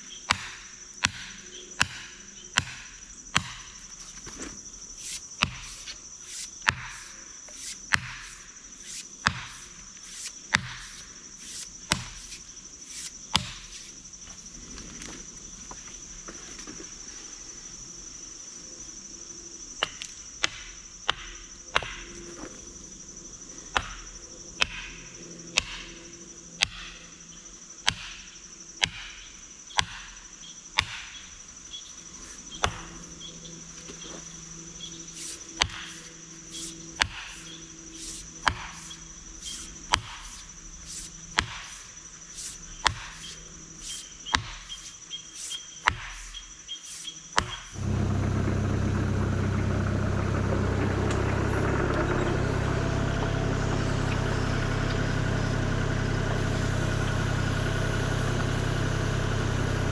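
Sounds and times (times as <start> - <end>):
high-pitched insect drone: 1.4 - 16.0, 31.5 - 47.8.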